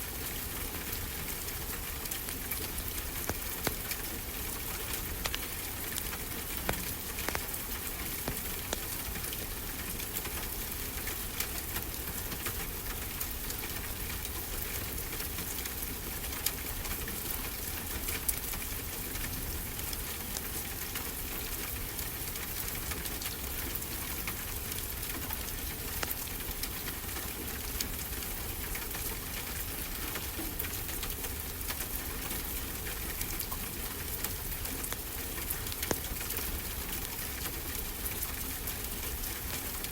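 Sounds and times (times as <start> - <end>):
wood fire crackling and popping: 2.1 - 9.4, 24.8 - 26.6, 33.4 - 37.2.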